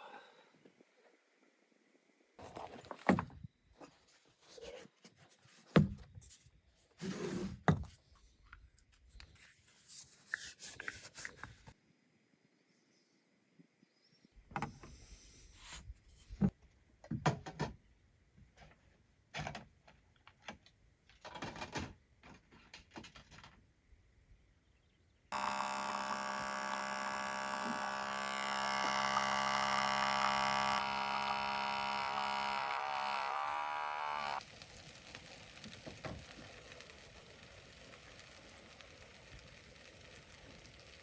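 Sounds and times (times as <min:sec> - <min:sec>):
small electric motor humming: 0:25.3 - 0:34.5.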